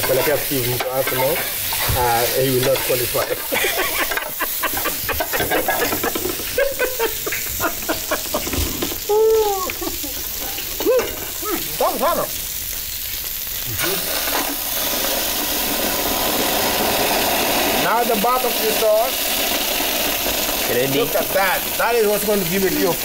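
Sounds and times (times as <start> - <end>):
utensil scraping a pan: 0.0 - 7.5
food sizzling in a pan: 0.0 - 23.0.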